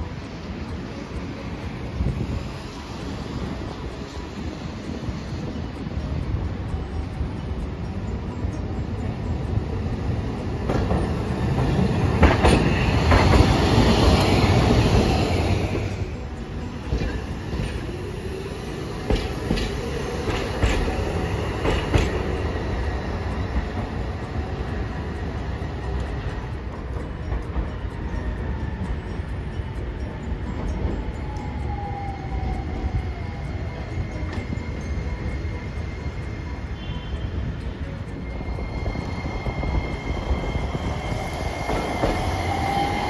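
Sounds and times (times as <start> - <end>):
streetcar passing: 0.0 - 43.0
wheels clacking over rail joints: 8.2 - 37.0.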